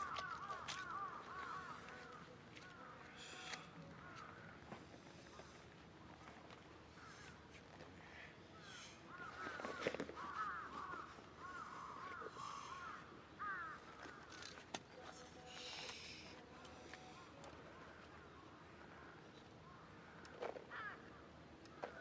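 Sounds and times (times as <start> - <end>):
crows cawing: 0.0 - 4.7, 6.9 - 7.4, 8.6 - 14.6, 18.9 - 22.0.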